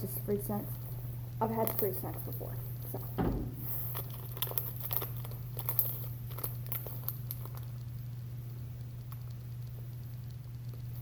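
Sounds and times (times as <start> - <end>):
steady low hum: 0.0 - 11.0
person chewing: 3.9 - 7.9.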